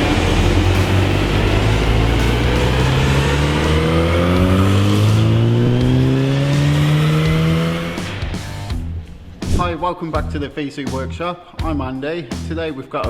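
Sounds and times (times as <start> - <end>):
car engine revving under load: 0.0 - 9.7.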